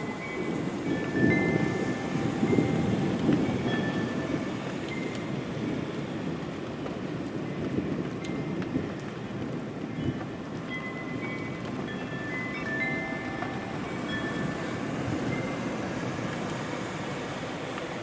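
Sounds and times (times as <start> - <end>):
steady rain: 0.0 - 18.0
thunder rumble: 0.0 - 18.0.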